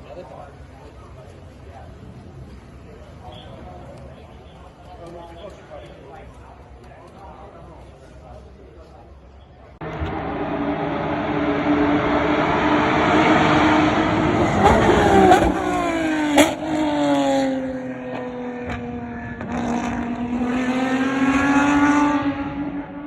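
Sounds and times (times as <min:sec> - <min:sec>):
sharp exhaust crack: 0:09.8 - 0:16.8
race car engine running hard: 0:09.8 - 0:23.0.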